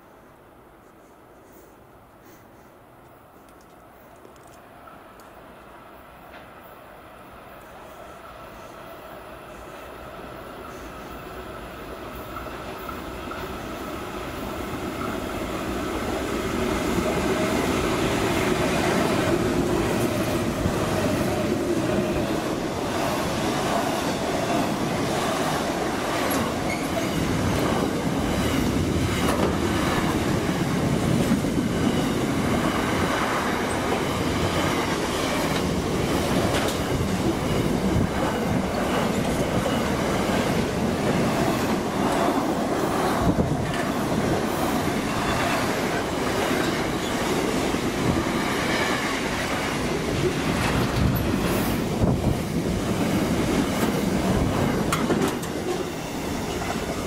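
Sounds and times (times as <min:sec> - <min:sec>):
steel wheels rumbling on rail: 0:08.1 - 0:57.0
wheels clattering over rail joints: 0:26.0 - 0:32.6, 0:53.7 - 0:57.0.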